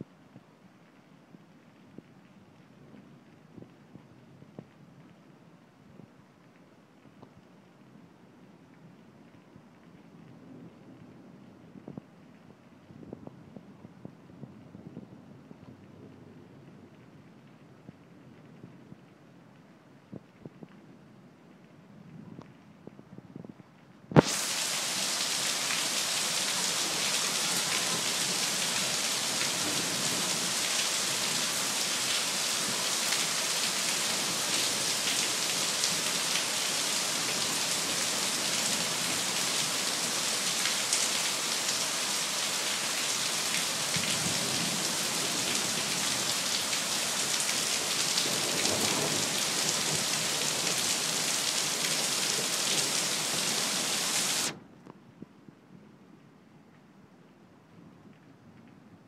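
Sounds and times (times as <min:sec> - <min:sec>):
heavy rain pouring: 0:24.2 - 0:54.6.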